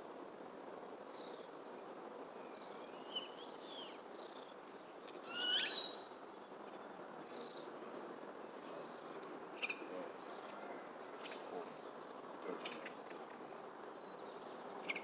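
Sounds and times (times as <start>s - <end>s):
steady background noise: 0.0s - 15.0s
birds chirping and whistling: 5.3s - 6.0s.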